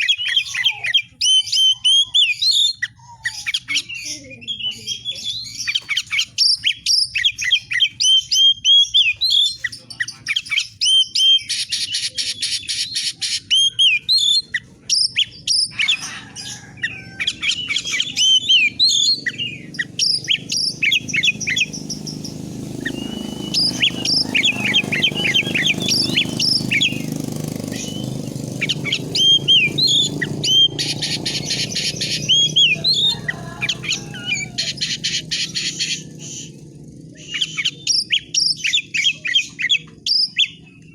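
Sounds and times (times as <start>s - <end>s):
songbird singing whistled notes: 17.2s - 36.6s, 37.2s - 40.9s.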